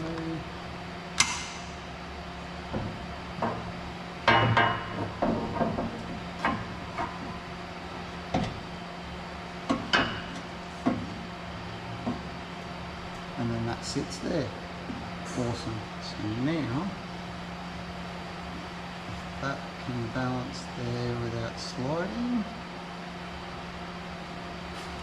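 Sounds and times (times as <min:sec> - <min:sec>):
steady low hum: 0:00.0 - 0:25.0
metal pipes knocking and clanking: 0:02.7 - 0:07.4.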